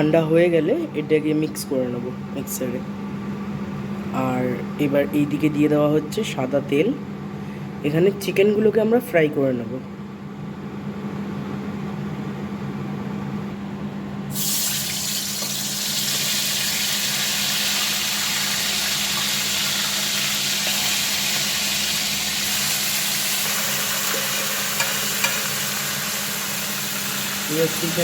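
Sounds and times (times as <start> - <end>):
chicken frying in oil: 14.4 - 28.0.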